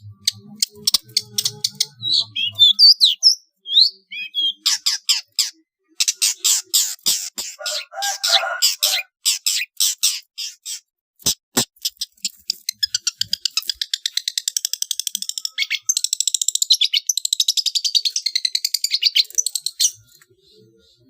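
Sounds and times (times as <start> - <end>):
sharp bird notes: 0.0 - 6.5.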